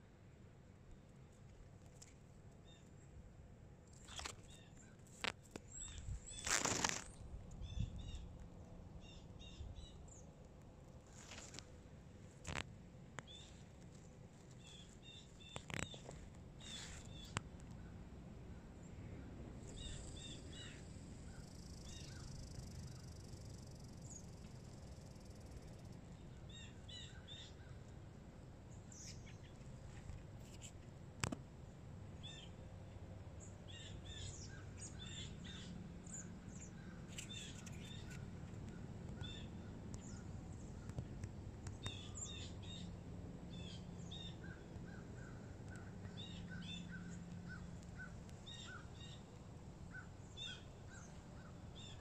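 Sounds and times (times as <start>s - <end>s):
low steady rumble: 0.0s - 6.4s, 7.0s - 52.0s
small birds chirping: 4.0s - 8.3s, 13.2s - 13.9s, 14.5s - 17.9s, 18.6s - 27.9s, 28.7s - 30.7s, 33.4s - 52.0s.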